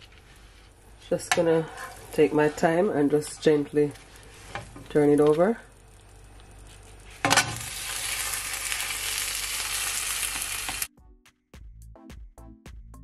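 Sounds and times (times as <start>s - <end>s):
oil sizzling in pan: 0.0s - 10.9s
background music with steady beat: 10.9s - 13.0s.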